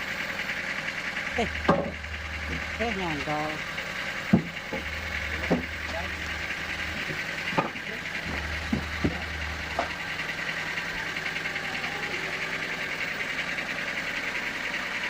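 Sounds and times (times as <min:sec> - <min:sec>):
sawmill machinery running: 0:00.0 - 0:15.0
low hum: 0:01.2 - 0:15.0
short knocks: 0:04.3 - 0:10.0.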